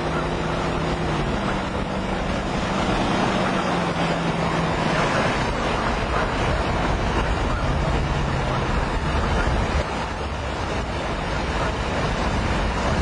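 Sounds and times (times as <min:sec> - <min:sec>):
low vehicle engine hum: 0:00.0 - 0:13.0
wind buffeting microphone: 0:00.0 - 0:13.0.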